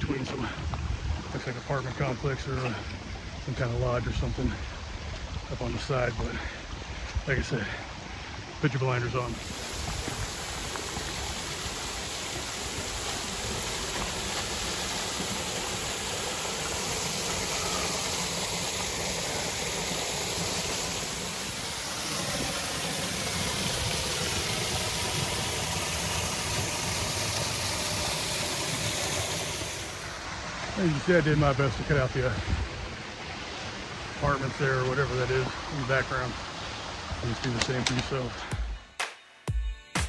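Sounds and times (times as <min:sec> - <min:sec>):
small waterfall rushing: 0:00.0 - 0:38.6.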